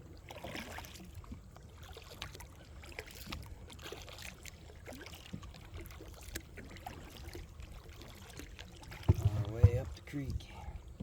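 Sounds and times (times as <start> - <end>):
paddle splashing in water: 0.0 - 11.0
light knocks: 9.0 - 10.0.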